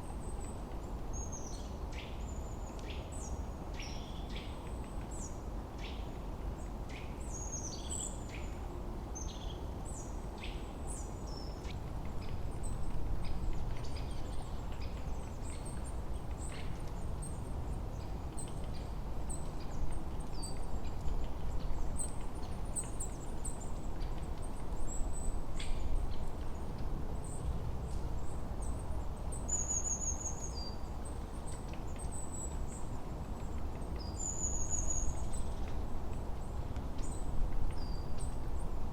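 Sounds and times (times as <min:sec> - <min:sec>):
small birds chirping: 0:09.2 - 0:38.7.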